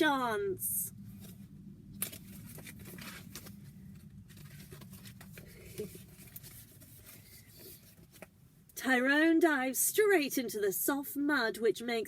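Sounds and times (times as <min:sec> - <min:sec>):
paper rustling: 0:02.0 - 0:08.3.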